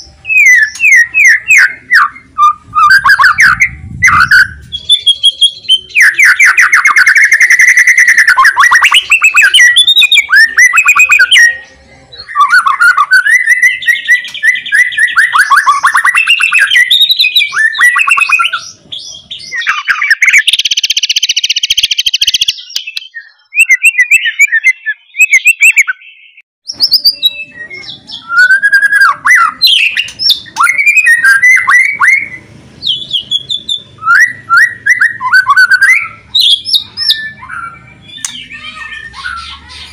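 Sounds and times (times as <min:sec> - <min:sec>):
songbird singing: 0:00.0 - 0:39.9
harsh rattling bird calls: 0:27.8 - 0:39.9.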